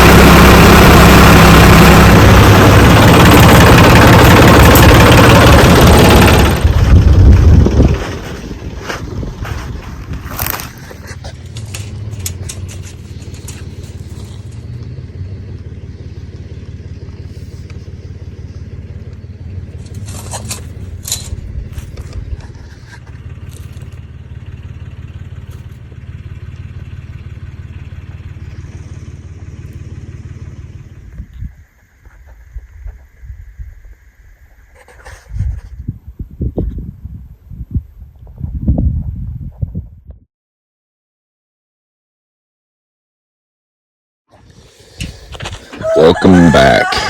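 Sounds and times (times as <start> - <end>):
small engine running: 0.0 - 32.2, 44.3 - 47.0
sharp knocks and scrapes: 7.9 - 14.6, 19.8 - 23.9.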